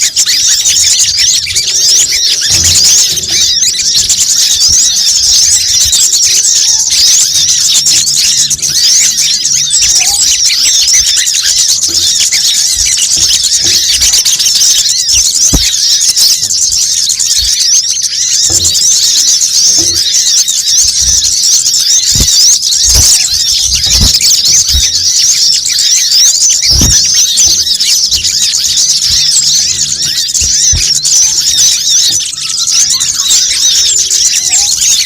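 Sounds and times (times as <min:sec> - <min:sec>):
chorus of twittering birds: 0:00.0 - 0:35.0
low thuds: 0:15.0 - 0:16.0, 0:22.0 - 0:25.4.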